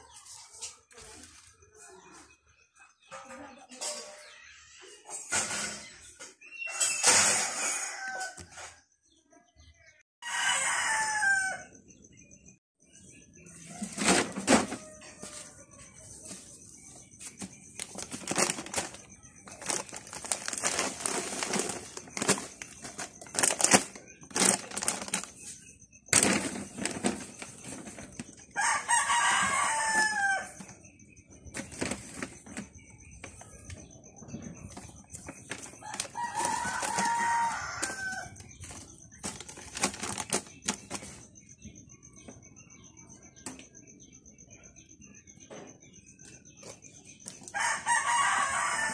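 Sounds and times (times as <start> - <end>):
rooster crowing: 10.2 - 11.8, 28.6 - 30.6, 35.8 - 38.4, 47.5 - 48.9
rustling and crinkling: 13.7 - 30.8, 31.5 - 33.8, 34.6 - 41.5.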